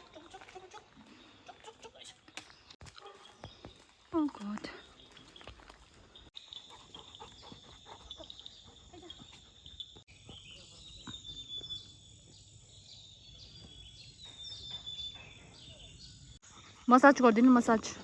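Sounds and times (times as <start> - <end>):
insects chirping: 5.0 - 18.0.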